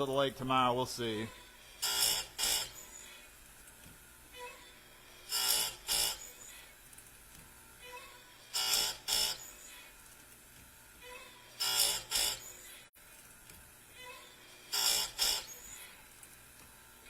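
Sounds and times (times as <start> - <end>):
grinder wheel grinding chain: 1.2 - 3.3, 4.4 - 7.2, 7.8 - 10.2, 11.0 - 13.3, 14.0 - 16.3.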